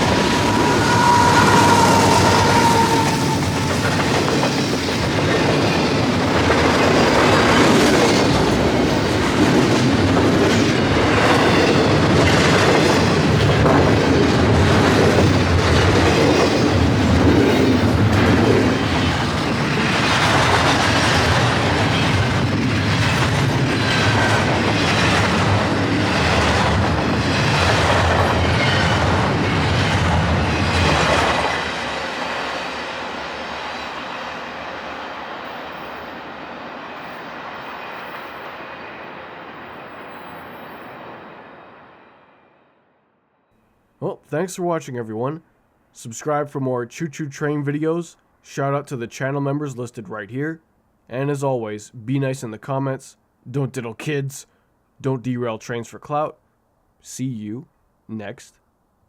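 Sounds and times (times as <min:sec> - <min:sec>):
train wheels clacking over rail joints: 0:00.0 - 0:31.7
rumble of wheels on rail: 0:00.0 - 0:42.6.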